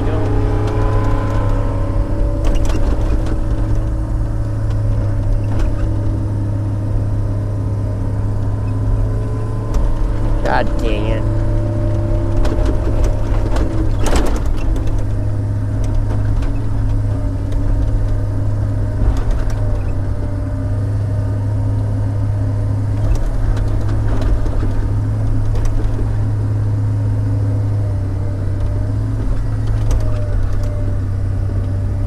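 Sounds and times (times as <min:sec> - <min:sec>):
whining tone: 0:00.0 - 0:23.5
diesel engine running under load: 0:00.0 - 0:32.0.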